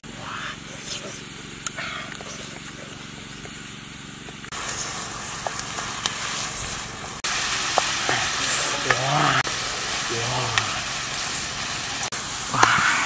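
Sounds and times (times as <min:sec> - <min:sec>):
wood fire crackling: 0:00.1 - 0:13.0
eggs sizzling in a pan: 0:04.3 - 0:13.0.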